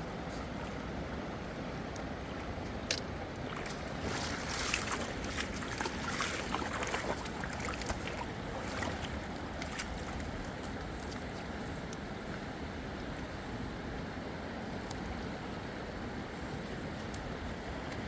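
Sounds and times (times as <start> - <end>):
water sloshing and splashing: 0.0 - 12.5.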